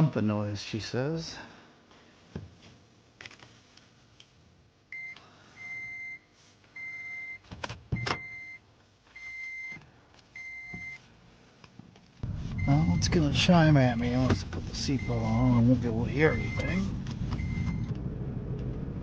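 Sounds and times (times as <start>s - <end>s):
seatbelt reminder chime beeping: 16.3s - 16.8s.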